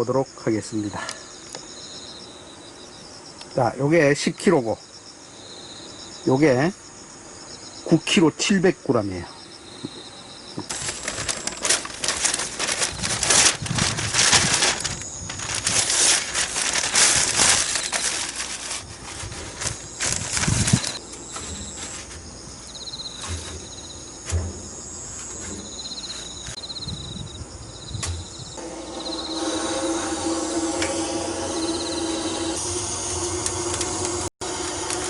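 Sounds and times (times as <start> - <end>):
crickets chirping: 0.0 - 35.0
rustling and knocking handling noise: 10.6 - 22.4, 23.0 - 26.6.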